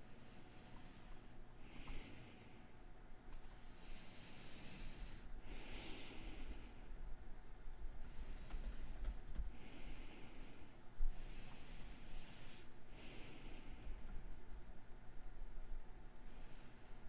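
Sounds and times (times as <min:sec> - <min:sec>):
faint low hum: 0:00.0 - 0:17.0
person breathing: 0:00.1 - 0:02.8, 0:03.6 - 0:07.0, 0:07.9 - 0:14.1, 0:16.2 - 0:17.0.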